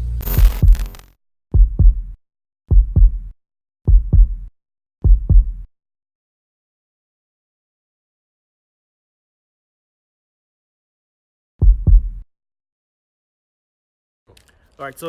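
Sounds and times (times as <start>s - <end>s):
heartbeat thumps: 0.0s - 1.0s, 1.6s - 3.3s, 3.9s - 5.7s, 11.6s - 12.2s
sharp bright hit: 0.2s - 1.0s.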